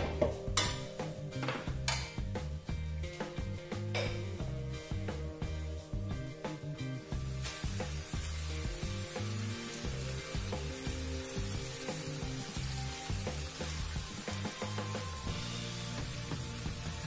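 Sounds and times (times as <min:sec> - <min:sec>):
background music with bass: 0:00.0 - 0:17.0
rice sizzling in a wok: 0:03.8 - 0:17.0.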